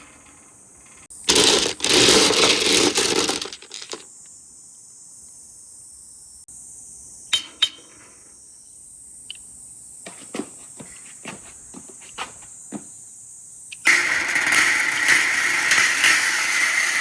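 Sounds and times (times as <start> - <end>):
marbles rolling rattle: 0.0 - 4.1, 13.8 - 17.0
glass marbles clinking: 1.3 - 4.0.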